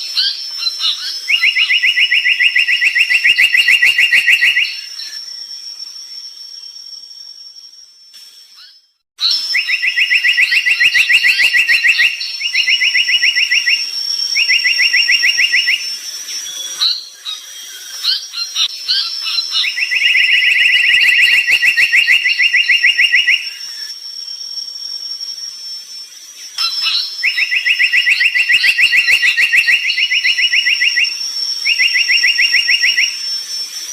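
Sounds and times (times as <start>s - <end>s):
bird chirping: 0.0s - 24.0s, 25.3s - 33.9s
bird rattling trills: 8.6s - 23.9s.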